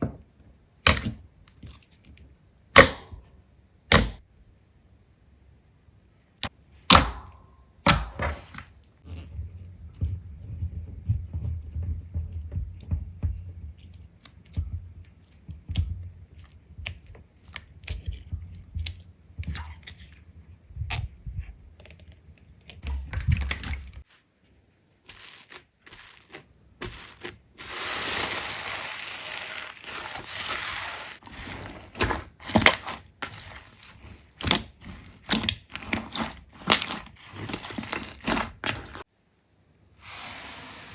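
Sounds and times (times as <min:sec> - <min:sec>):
slime squeezed by hand: 0:25.0 - 0:31.2.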